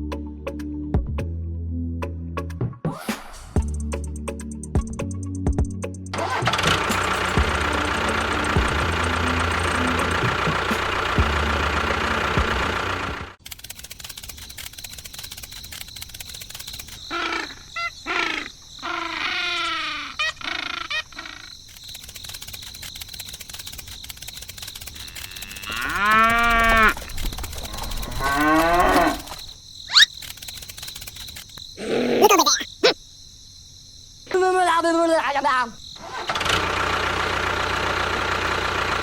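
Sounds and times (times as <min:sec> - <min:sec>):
cattle mooing: 0:25.0 - 0:27.0, 0:28.0 - 0:29.4.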